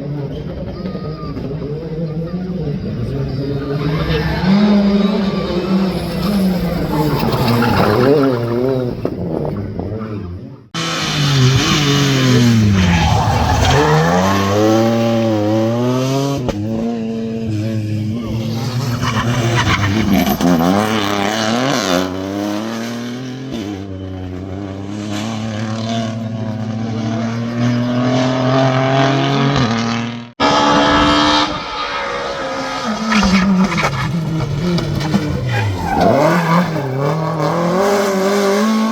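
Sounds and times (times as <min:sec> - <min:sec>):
rally car engine revving: 0:00.0 - 0:38.9.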